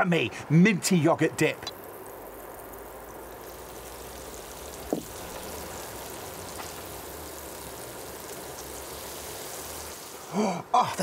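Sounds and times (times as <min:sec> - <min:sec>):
batter sizzling in hot oil: 0:01.6 - 0:10.4.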